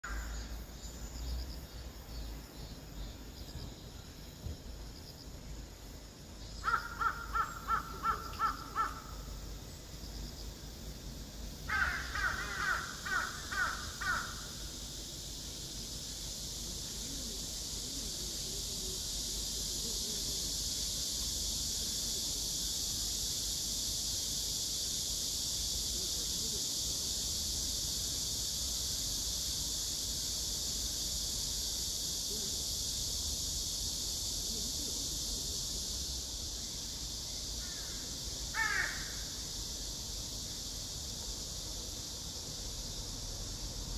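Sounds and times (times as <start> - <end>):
high-pitched insect chorus: 0.0 - 43.9
crow cawing: 6.6 - 9.2, 11.7 - 14.5, 38.5 - 39.3.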